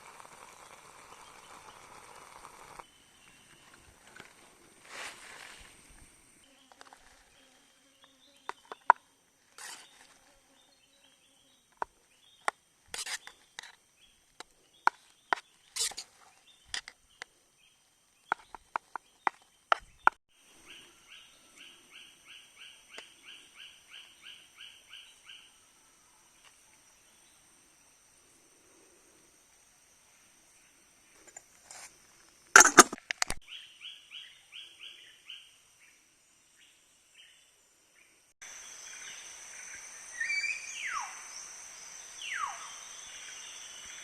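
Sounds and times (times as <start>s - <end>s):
sharp clicks and knocks: 32.6s - 33.4s
high-pitched insect drone: 38.4s - 44.0s.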